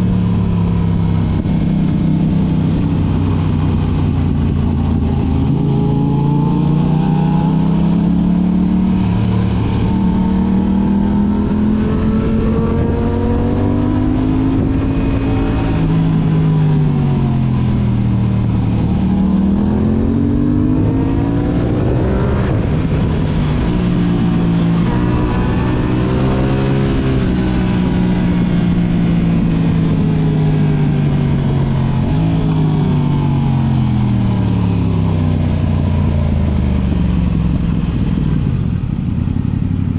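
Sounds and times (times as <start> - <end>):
low rushing noise: 0.0 - 39.3
sport bike engine revving: 3.9 - 30.7.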